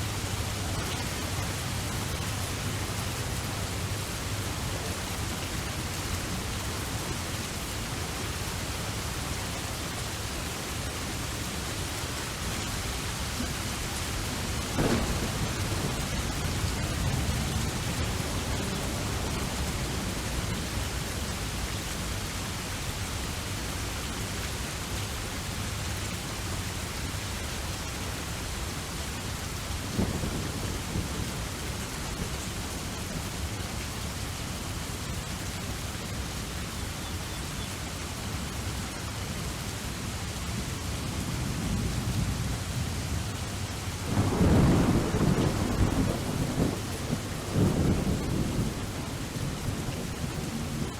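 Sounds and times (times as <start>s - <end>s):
steady rain: 0.0s - 50.9s
thunder rumbling: 12.6s - 22.1s, 44.0s - 50.9s
sharp crack of thunder: 14.3s - 20.4s, 44.0s - 50.9s.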